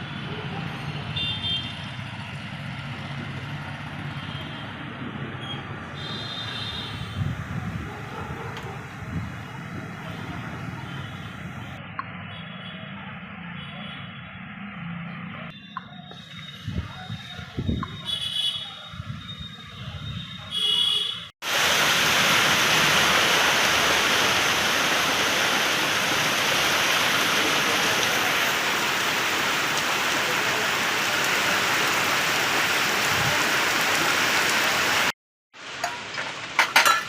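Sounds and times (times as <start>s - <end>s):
steady rain falling: 21.4s - 36.6s.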